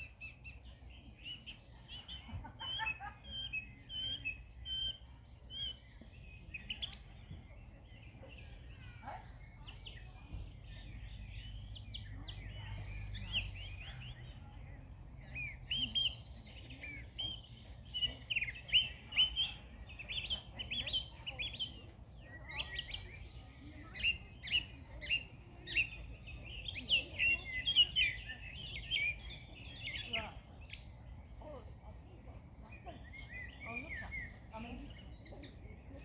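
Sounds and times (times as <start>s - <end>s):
songbirds chirping and trilling: 0.0s - 36.0s.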